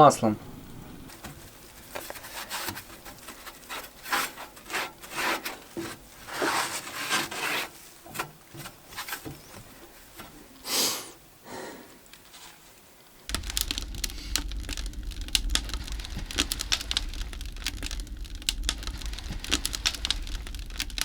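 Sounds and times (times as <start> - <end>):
rubbing on stove glass: 1.4 - 9.6.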